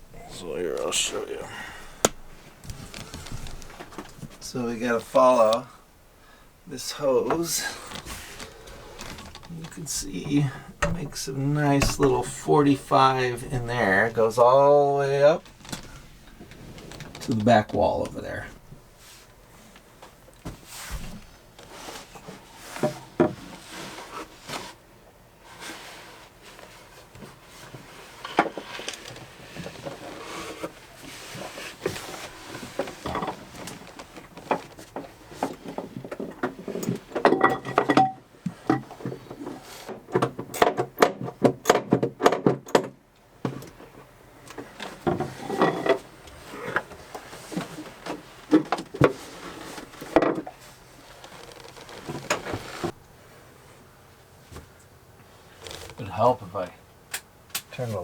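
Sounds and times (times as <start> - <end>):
gear and tools clattering: 7.3 - 14.2, 15.4 - 18.6
rattling knocks: 8.4 - 12.4.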